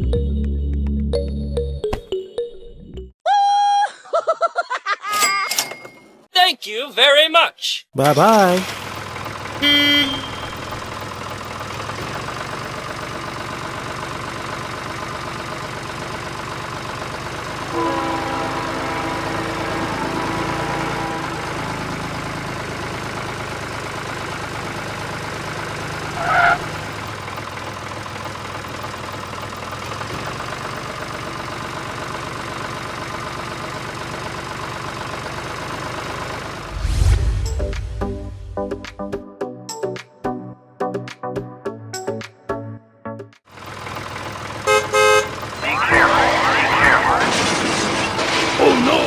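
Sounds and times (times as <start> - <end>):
tractor engine running: 8.0 - 39.1, 43.5 - 49.0
pitched tone: 45.6 - 47.6
short high toot: 45.6 - 47.6.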